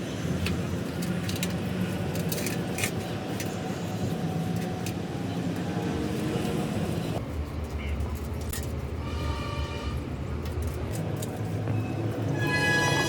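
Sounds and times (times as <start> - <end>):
metallic clicks of parts handled: 0.4 - 3.6, 7.6 - 8.8, 10.4 - 11.6.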